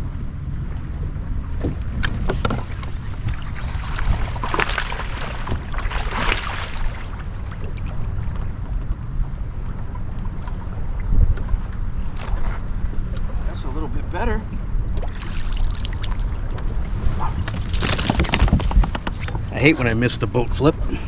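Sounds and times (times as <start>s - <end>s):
wind buffeting microphone: 0.0s - 9.2s, 16.4s - 21.0s.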